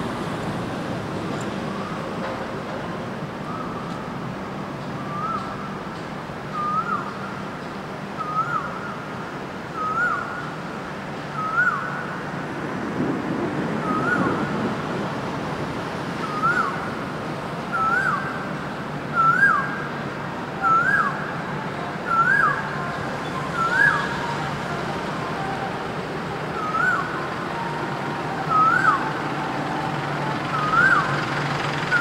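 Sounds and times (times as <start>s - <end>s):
low traffic hum: 0.0s - 32.0s
bird whistling call: 5.0s - 5.6s, 6.5s - 7.1s, 8.2s - 8.7s, 9.8s - 10.3s, 11.4s - 11.9s, 16.2s - 16.8s, 17.7s - 18.3s, 19.1s - 19.8s, 20.6s - 21.2s, 22.1s - 24.2s, 26.6s - 27.1s, 30.5s - 31.2s.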